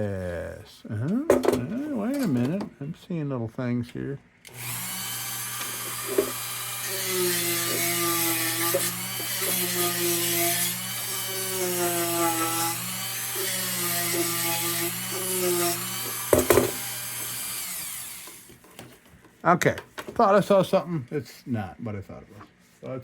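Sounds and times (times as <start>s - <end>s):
power tool motor running: 4.5s - 18.6s.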